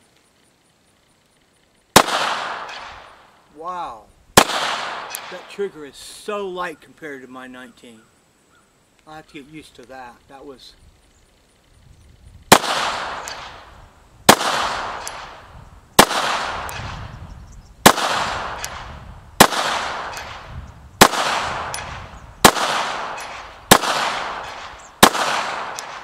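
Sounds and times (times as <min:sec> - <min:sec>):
pistol shots echoing: 0:02.0 - 0:03.2, 0:04.4 - 0:05.6, 0:12.5 - 0:13.7, 0:14.3 - 0:17.1, 0:17.8 - 0:26.0.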